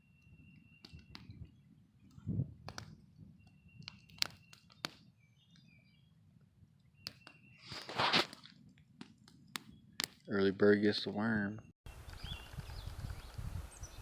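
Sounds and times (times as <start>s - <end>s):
bird chirps: 0.0s - 2.3s, 3.2s - 6.2s, 6.8s - 7.8s, 11.4s - 14.0s
sharp clicks: 2.6s - 5.0s.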